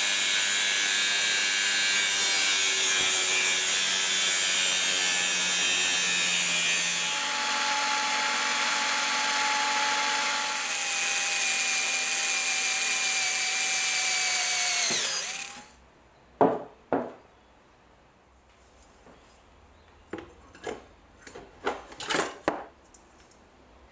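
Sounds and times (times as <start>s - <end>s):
power tool whining: 0.0s - 15.8s.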